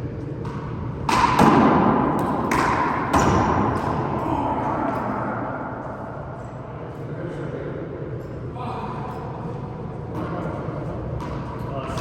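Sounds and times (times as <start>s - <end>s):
ball bouncing: 0.2s - 4.2s, 11.1s - 12.0s
rubber ball hits echoing in court: 0.4s - 5.6s.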